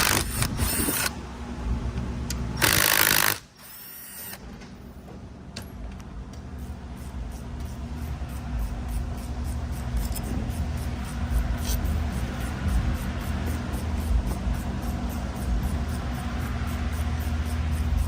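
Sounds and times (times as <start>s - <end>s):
power tool spinning: 0.0s - 1.2s, 2.6s - 4.4s
steady low hum: 0.0s - 18.0s.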